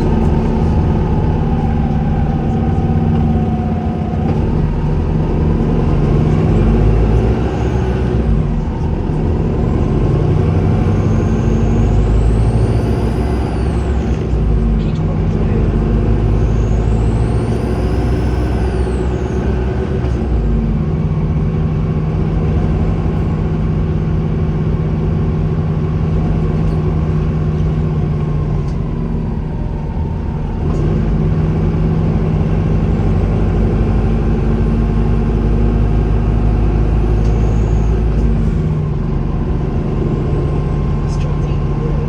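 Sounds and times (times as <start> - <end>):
bus diesel engine running: 0.0 - 42.0
high turbo whistle: 10.6 - 14.2, 16.2 - 20.1, 37.0 - 38.2.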